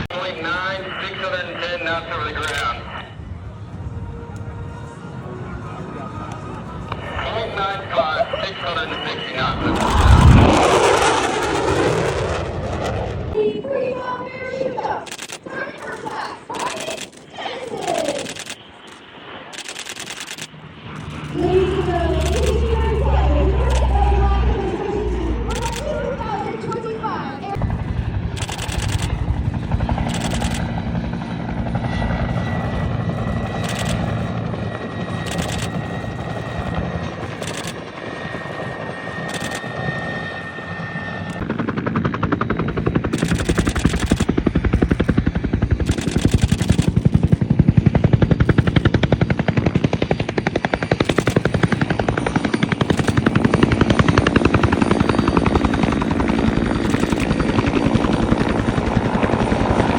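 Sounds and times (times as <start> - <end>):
aircraft engines throbbing: 0.0 - 59.9
camera shutter clicks: 2.4 - 2.6, 15.1 - 17.2, 17.8 - 21.3, 22.1 - 22.8, 25.5 - 25.9, 28.4 - 29.2, 30.0 - 30.7, 33.6 - 34.0, 35.3 - 35.7, 37.4 - 37.8, 39.3 - 39.6, 45.9 - 46.9.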